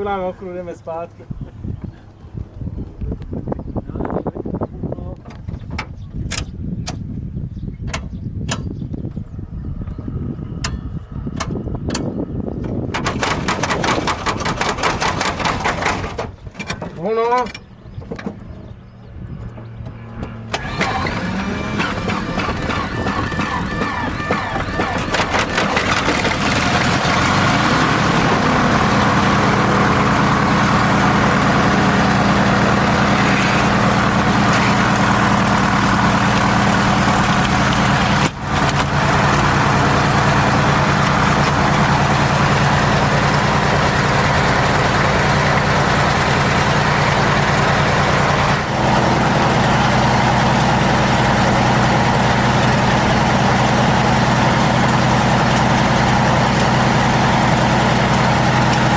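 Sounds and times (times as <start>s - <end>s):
aircraft piston engine drone: 19.0s - 58.9s.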